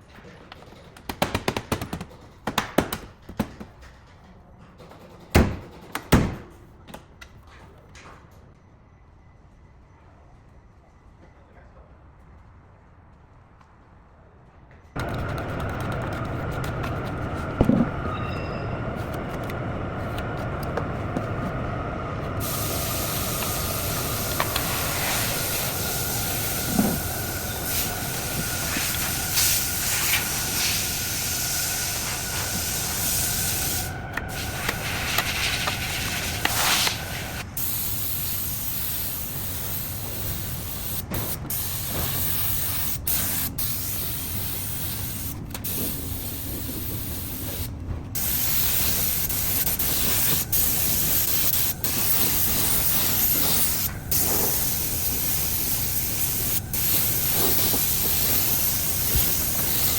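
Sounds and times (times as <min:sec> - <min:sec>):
spray gun hissing: 0:22.2 - 0:59.9.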